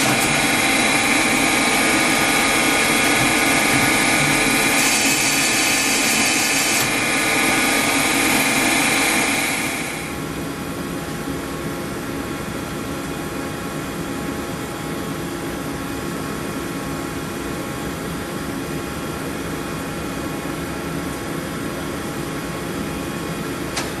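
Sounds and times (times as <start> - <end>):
loud cutting noise: 0.0 - 10.2
machine humming with fixed tones: 0.0 - 10.8.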